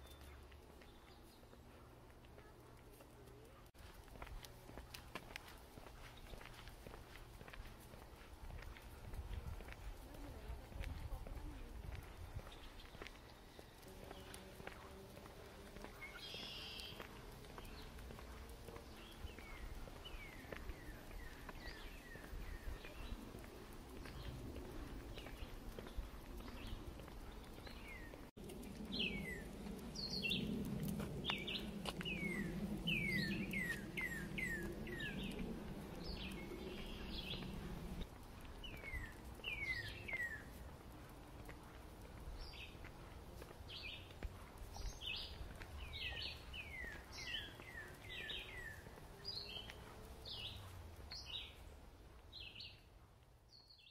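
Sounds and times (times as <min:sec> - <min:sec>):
birds chirping: 0:00.0 - 0:52.9
low rumble: 0:21.3 - 0:40.0.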